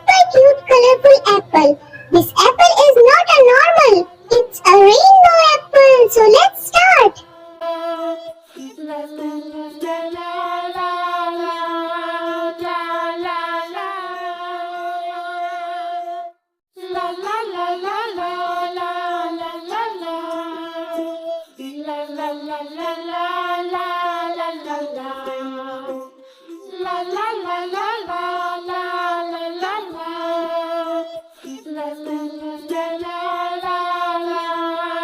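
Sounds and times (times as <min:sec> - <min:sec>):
child-like voice singing: 0:00.0 - 0:14.3.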